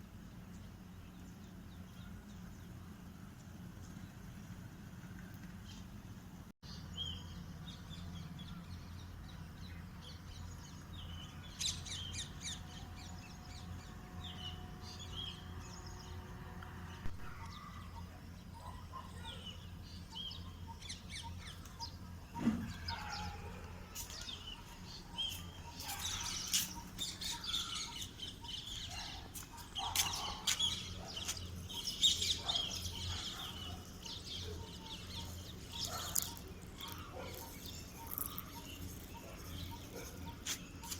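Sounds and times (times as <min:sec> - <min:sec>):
small birds chirping: 0:16.9 - 0:40.9.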